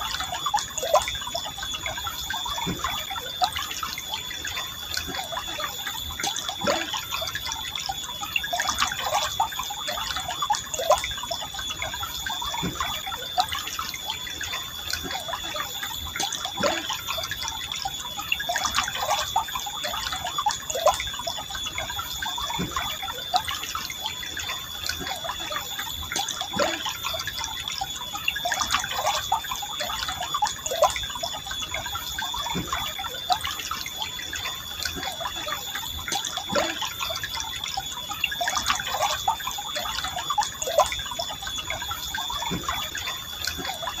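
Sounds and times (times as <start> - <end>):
stream trickling and gurgling: 0.0 - 44.0.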